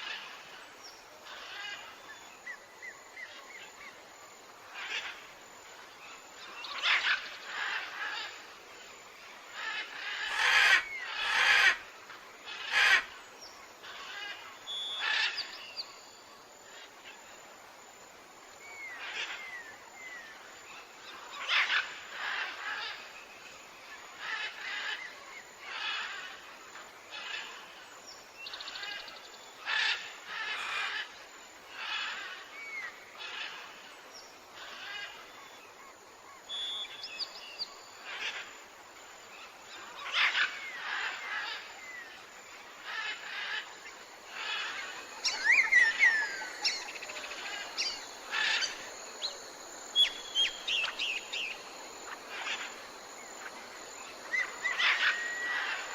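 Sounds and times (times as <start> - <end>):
tropical birds calling: 21.0 - 27.8, 28.4 - 38.7, 39.3 - 55.9.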